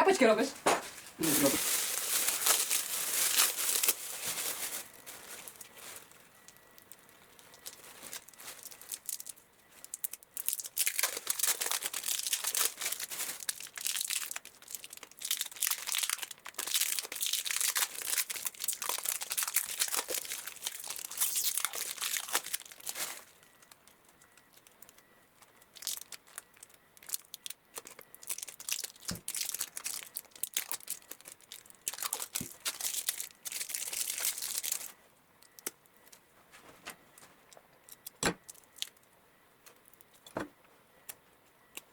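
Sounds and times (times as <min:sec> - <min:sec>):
dry scratchy rustling and scraping: 0:00.7 - 0:24.8.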